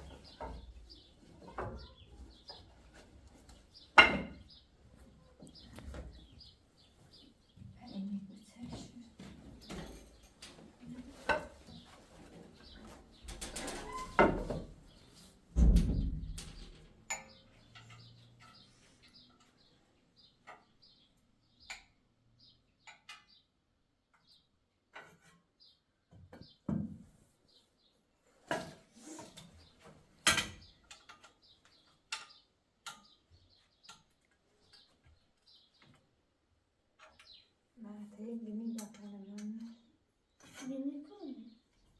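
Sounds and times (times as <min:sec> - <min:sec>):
objects knocking and clattering: 0:00.0 - 0:04.5, 0:08.8 - 0:14.9, 0:15.6 - 0:18.4
small birds chirping: 0:00.0 - 0:26.7, 0:29.2 - 0:41.9
heavy thumps: 0:15.6 - 0:16.8.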